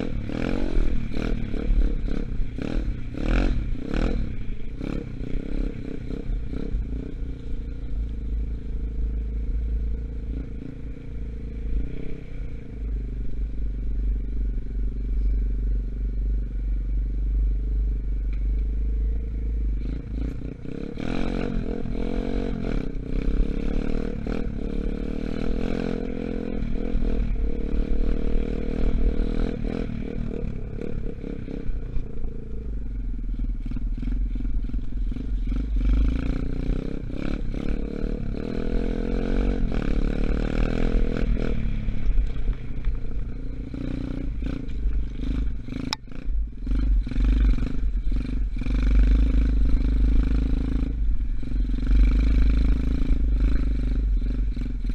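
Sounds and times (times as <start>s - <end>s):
dirt bike engine revving: 33.6s - 42.6s.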